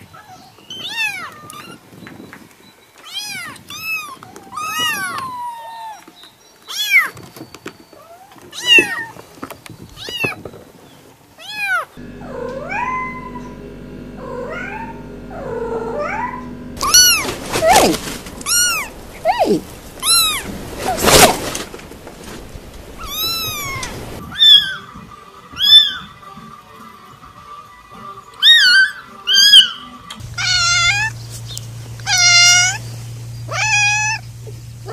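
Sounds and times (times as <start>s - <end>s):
kittens mewing: 11.4s - 24.8s, 28.4s - 31.2s, 32.0s - 34.9s
steady hum: 12.0s - 24.2s, 30.2s - 34.9s
adult cat meowing loudly: 23.0s - 24.8s, 30.3s - 31.1s, 32.0s - 32.8s, 33.5s - 34.2s.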